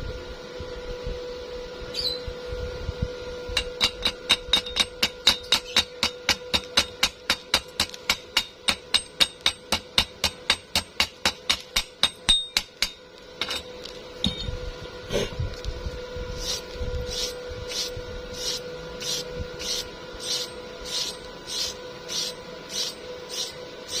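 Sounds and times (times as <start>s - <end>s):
hammer tapping on metal: 3.6s - 13.0s
scraping strokes: 16.4s - 24.0s.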